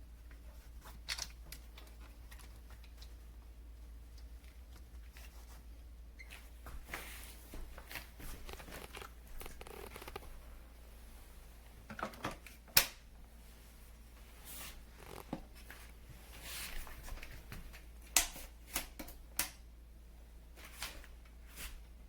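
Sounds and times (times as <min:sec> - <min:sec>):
handling rustles and clicks: 0:06.2 - 0:10.4, 0:14.8 - 0:19.5.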